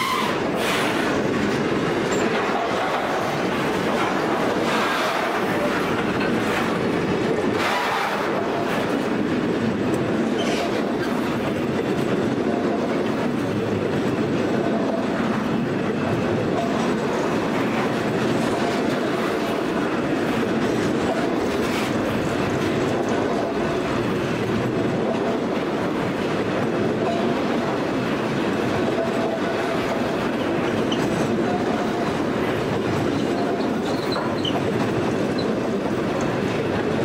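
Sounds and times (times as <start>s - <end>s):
freight train rolling past: 0.0s - 37.0s.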